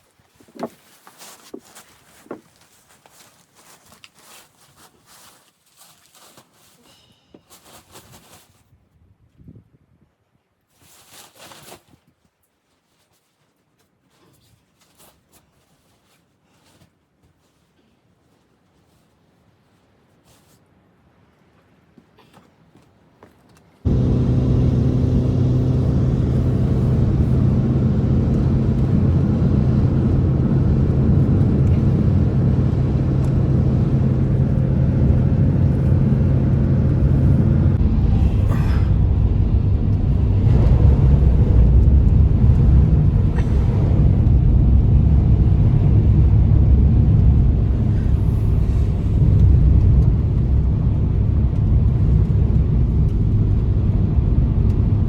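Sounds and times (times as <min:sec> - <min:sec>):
loud engine humming: 0:23.9 - 0:55.0.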